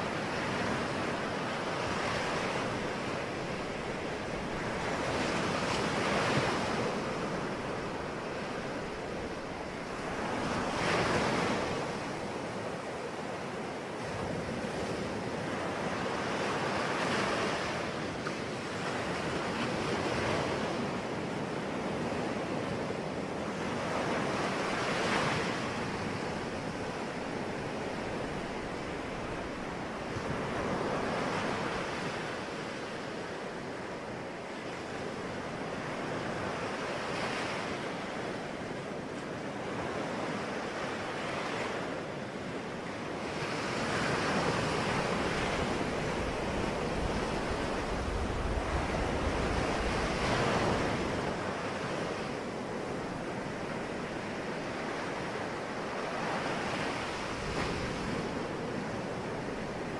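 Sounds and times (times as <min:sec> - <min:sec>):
ocean waves breaking: 0:00.0 - 0:22.8, 0:23.5 - 0:59.9
wind noise on microphone: 0:43.3 - 0:54.8.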